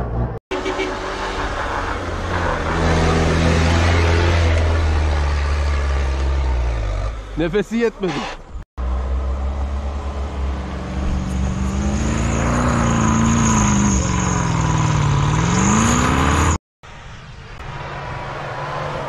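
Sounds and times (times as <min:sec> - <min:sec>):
suv engine revving with wheels spinning: 0:08.1 - 0:16.6.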